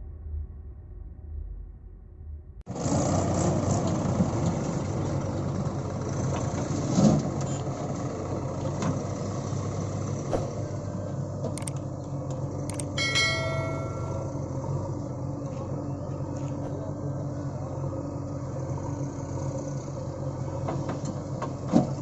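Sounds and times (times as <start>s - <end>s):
heavy diesel machinery running: 2.7s - 22.0s
light clicks: 11.6s - 11.8s
high-pitched tone: 12.7s - 14.5s.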